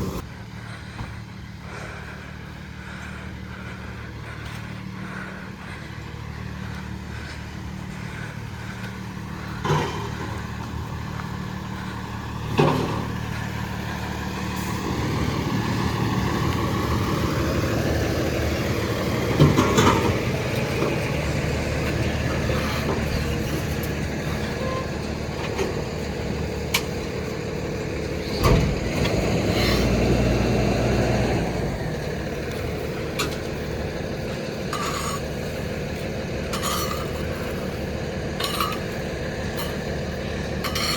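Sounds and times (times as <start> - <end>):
truck diesel engine revving: 0.0 - 40.9.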